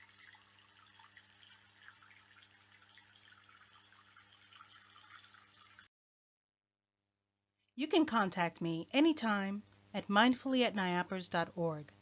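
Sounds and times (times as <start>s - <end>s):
low steady hum: 7.8s - 12.0s.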